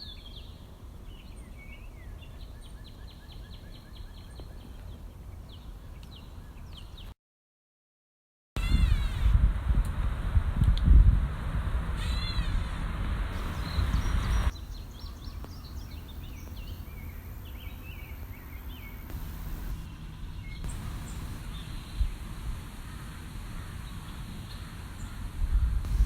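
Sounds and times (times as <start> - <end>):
birds chirping: 0.0 - 7.2, 11.8 - 26.0
wind rumbling on microphone: 8.6 - 26.0.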